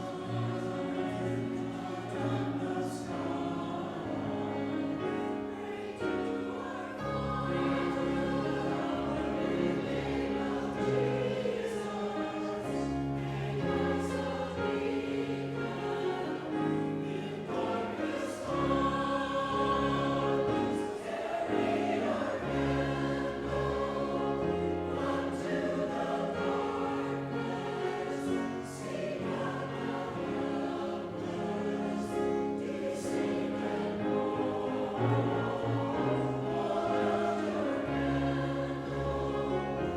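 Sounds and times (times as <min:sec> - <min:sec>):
church choir singing: 0:00.0 - 0:39.9.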